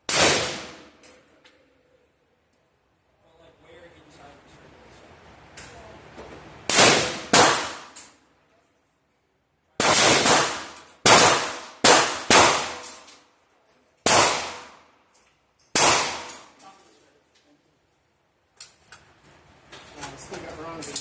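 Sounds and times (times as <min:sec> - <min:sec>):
rifle shots: 0:00.1 - 0:00.9, 0:06.7 - 0:08.0, 0:09.8 - 0:13.0, 0:14.0 - 0:14.8, 0:15.7 - 0:16.6.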